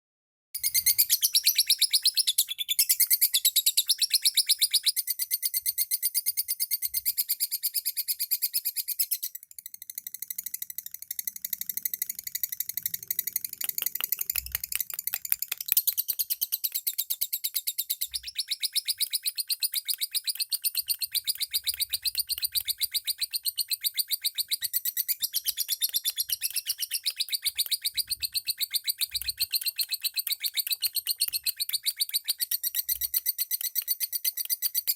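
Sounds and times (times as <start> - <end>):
lovebirds chirping: 11.9 - 34.9.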